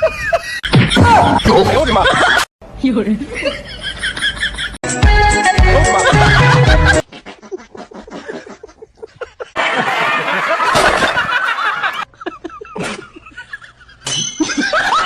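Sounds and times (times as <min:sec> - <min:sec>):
people snickering and laughing: 0:05.6 - 0:15.0.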